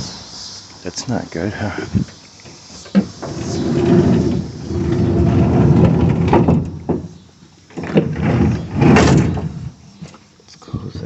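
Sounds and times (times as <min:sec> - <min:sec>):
metal door scraping: 0:02.8 - 0:09.8.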